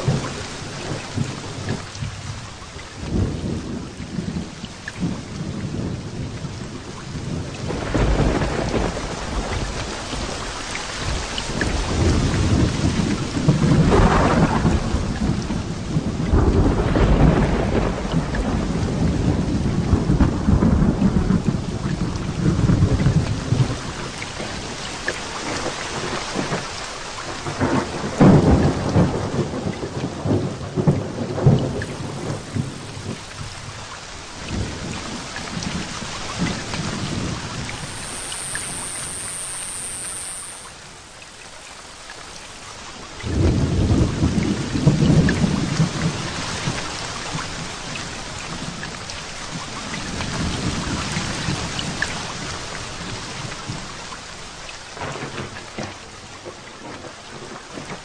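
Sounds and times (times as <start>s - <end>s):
heavy rain pouring: 0.0s - 58.0s
sharp thunder claps: 7.3s - 10.4s, 11.0s - 23.8s, 43.2s - 46.9s
thunder rumbling: 7.3s - 24.7s, 27.3s - 41.5s, 43.2s - 48.8s.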